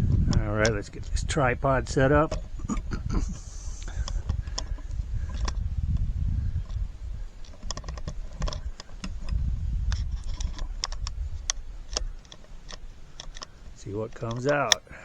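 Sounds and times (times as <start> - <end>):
microphone handling rumble: 0.0 - 14.9
tripod clicking and clattering: 3.8 - 14.8.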